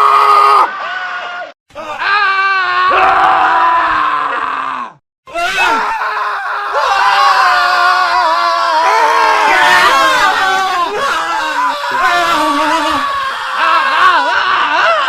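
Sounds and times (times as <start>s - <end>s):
man screaming: 0.0s - 15.0s.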